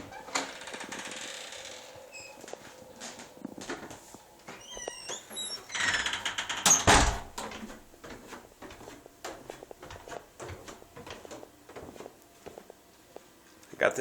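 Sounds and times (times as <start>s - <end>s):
door squeaking: 0.0s - 2.6s, 4.5s - 7.8s
footsteps on stairs: 1.9s - 5.6s, 7.1s - 13.4s
door rattling: 5.1s - 7.9s
door shutting with a thump: 5.9s - 7.7s.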